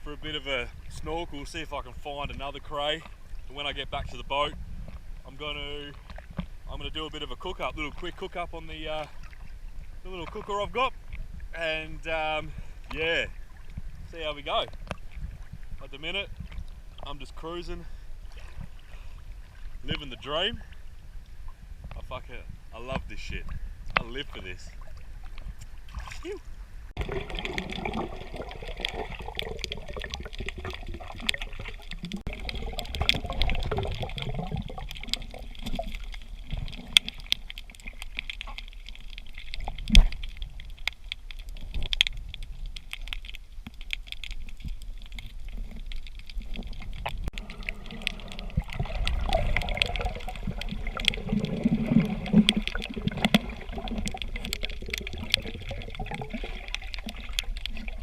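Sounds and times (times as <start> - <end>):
water sloshing and gurgling: 0.0 - 58.0
small clicks and crackles: 1.5 - 6.6, 12.7 - 17.1, 27.0 - 58.0.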